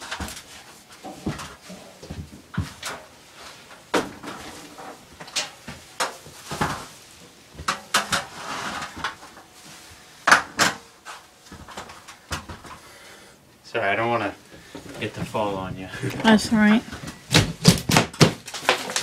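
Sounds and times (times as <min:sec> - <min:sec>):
sharp knocks and clatter: 0:17.3 - 0:19.0.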